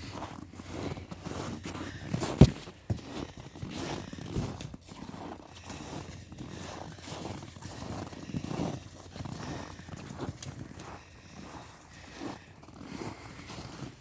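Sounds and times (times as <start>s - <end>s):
scuffling footsteps and knocks: 0.0s - 5.7s.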